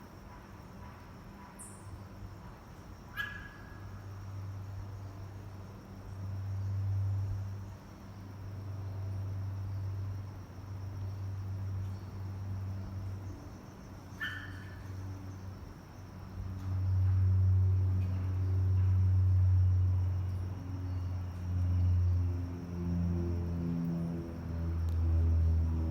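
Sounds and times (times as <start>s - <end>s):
low hum: 16.5s - 25.9s.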